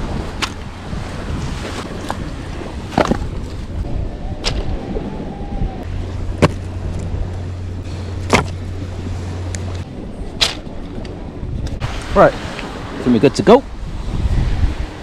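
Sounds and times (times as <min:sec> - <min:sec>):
steady low rumble: 0:00.0 - 0:13.0
wood splitting knocks: 0:02.9 - 0:03.3, 0:06.4 - 0:06.6, 0:08.3 - 0:08.6.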